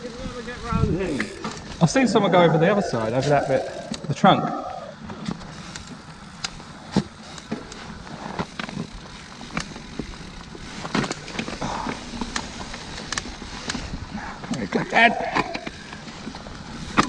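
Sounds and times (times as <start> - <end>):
mountain bike rattling and clattering: 0.0 - 17.0
tyres on dirt trail: 0.0 - 17.0
wind on microphone: 0.2 - 1.8.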